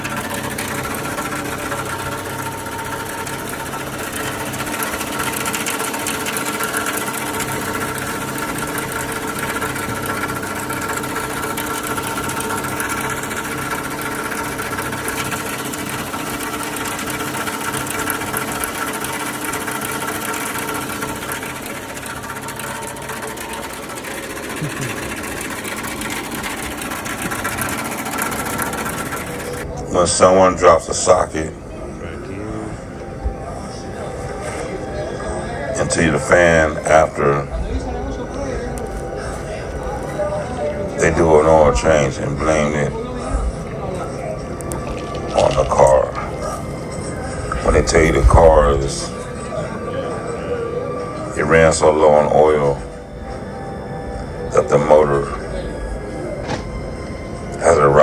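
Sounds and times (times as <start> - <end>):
car engine knocking clatter: 0.0 - 29.7.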